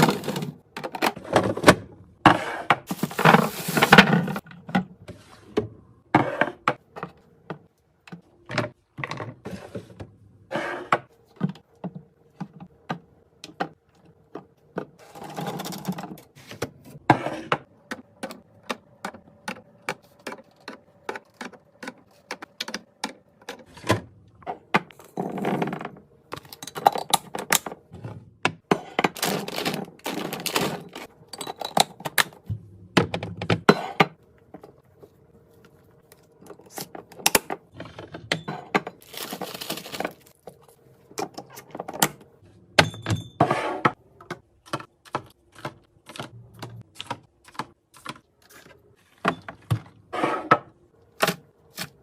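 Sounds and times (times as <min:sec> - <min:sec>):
packaging rustling: 0:39.0 - 0:40.4.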